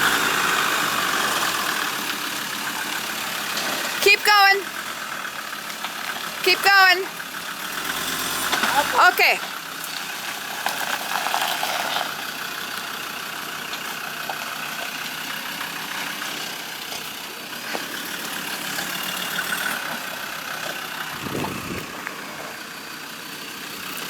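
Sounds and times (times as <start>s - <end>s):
engine running at low revs: 0.0s - 4.0s, 4.7s - 24.0s.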